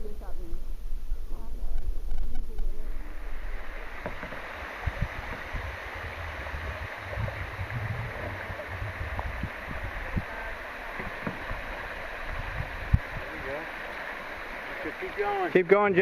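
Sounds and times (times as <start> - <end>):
low thumps: 0.5 - 14.0
river water rushing: 2.9 - 16.0.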